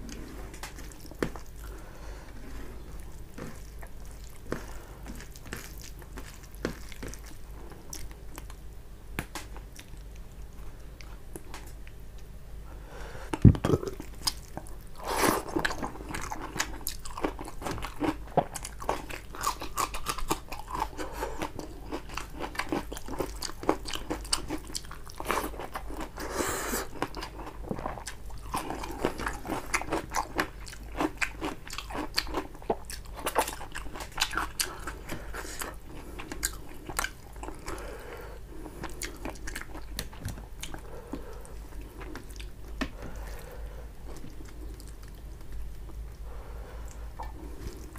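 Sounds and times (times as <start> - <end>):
wet chewing and biting: 3.1 - 8.6, 13.7 - 26.2, 26.8 - 37.8.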